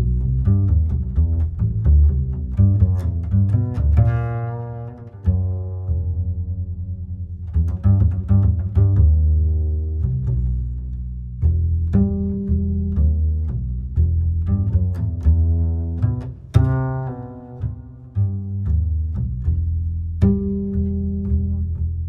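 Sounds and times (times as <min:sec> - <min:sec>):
deep bass notes: 0:00.0 - 0:22.0
slow plucked guitar music: 0:00.0 - 0:22.0.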